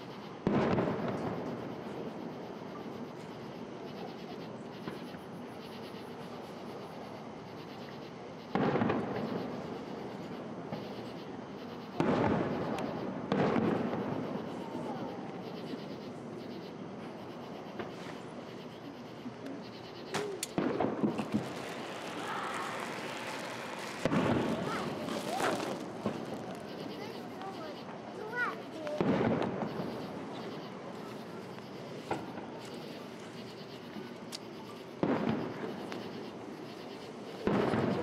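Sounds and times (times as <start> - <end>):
firework crackles: 8.5 - 15.5, 19.8 - 38.0
firework shell bursts: 20.1 - 27.2.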